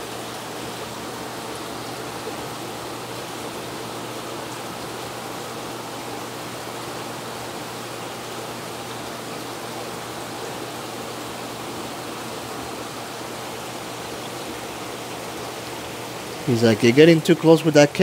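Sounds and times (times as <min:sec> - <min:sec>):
aquarium water rushing: 0:00.0 - 0:18.0.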